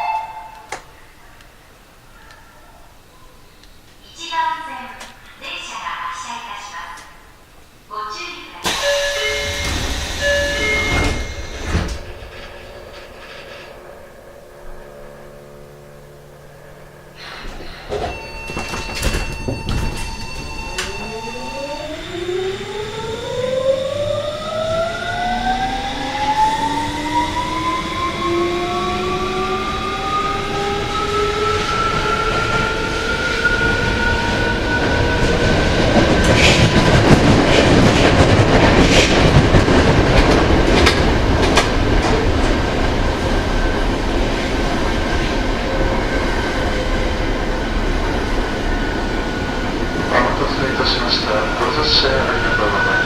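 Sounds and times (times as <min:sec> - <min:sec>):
rail-joint clicks: 0:08.6 - 0:14.8, 0:17.4 - 0:21.2, 0:36.0 - 0:42.6
train motors whining: 0:08.6 - 0:36.6
wheel and rail noise: 0:08.7 - 0:53.0.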